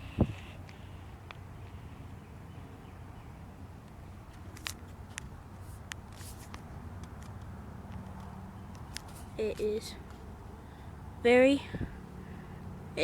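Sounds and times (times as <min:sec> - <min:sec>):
soft rustle: 0:04.3 - 0:06.7, 0:08.8 - 0:10.3.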